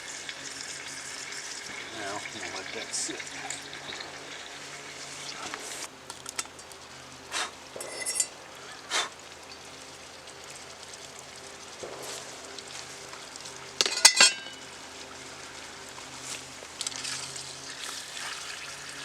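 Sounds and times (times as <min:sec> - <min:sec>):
ground beef sizzling in a pan: 0:00.0 - 0:19.0
utensil clinking and scraping pan: 0:07.4 - 0:09.1, 0:13.8 - 0:14.7.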